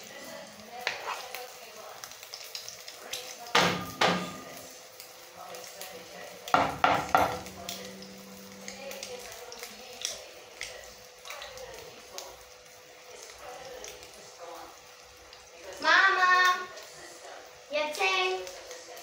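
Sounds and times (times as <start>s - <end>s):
food sizzling in oil: 0.0s - 19.0s
kitchenware clattering: 3.5s - 4.6s, 6.5s - 7.8s.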